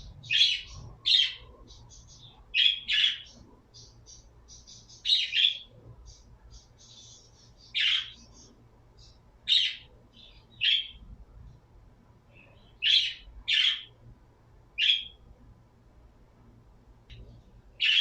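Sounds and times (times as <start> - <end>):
bird chirping: 0.0 - 11.6, 12.3 - 14.0, 14.8 - 15.3, 17.1 - 18.0.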